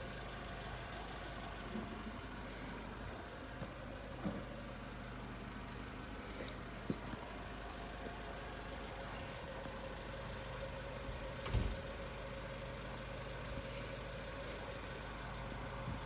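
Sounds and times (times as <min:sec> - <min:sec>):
low motor hum: 0:00.0 - 0:16.0
dull thump: 0:11.4 - 0:11.9.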